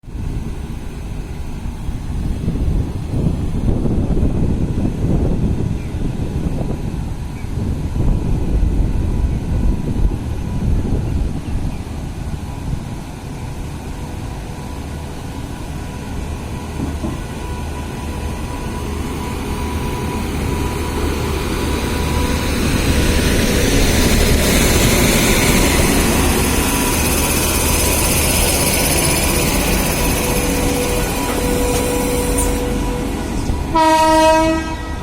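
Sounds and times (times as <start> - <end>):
train rumbling: 0.0 - 35.0
train wheels on rails: 0.0 - 35.0
hiss: 19.8 - 32.8.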